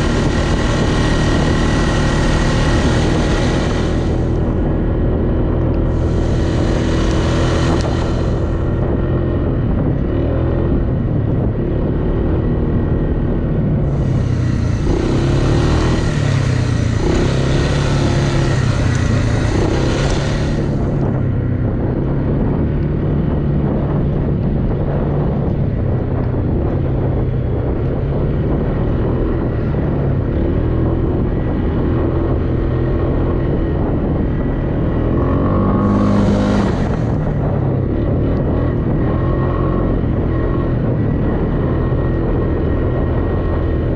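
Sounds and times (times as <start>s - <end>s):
vehicle engine running under load: 0.0s - 43.9s
rushing hiss: 2.6s - 4.4s, 5.9s - 8.7s, 13.9s - 21.0s.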